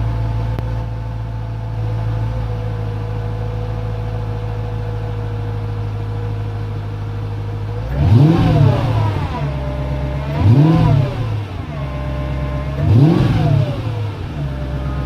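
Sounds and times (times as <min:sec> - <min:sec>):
car engine throttle blips: 0:07.5 - 0:15.0.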